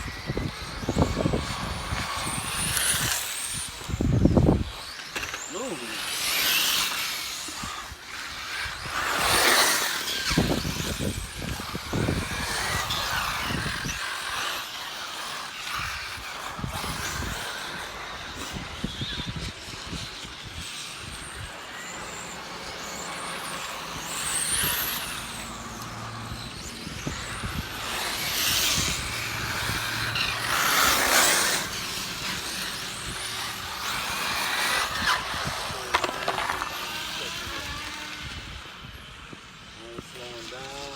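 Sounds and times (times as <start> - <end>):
radio-controlled car motors whining: 0.0 - 40.9.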